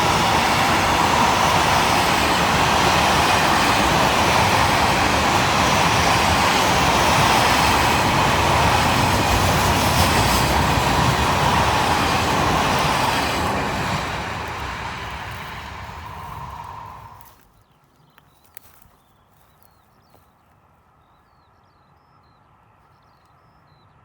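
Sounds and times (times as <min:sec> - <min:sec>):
electric train passing: 0:00.0 - 0:17.4.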